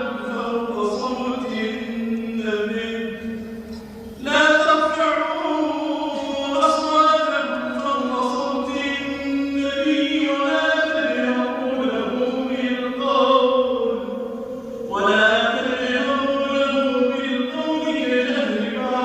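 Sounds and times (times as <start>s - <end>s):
man chanting melodically: 0.0s - 19.0s.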